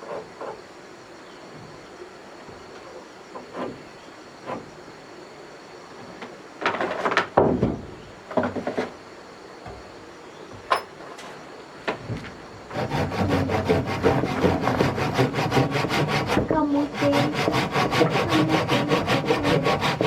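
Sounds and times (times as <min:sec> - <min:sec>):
wood knocks and scrapes: 0:02.5 - 0:04.8, 0:06.0 - 0:09.0, 0:09.6 - 0:20.0
saw cutting through wood: 0:12.7 - 0:20.0.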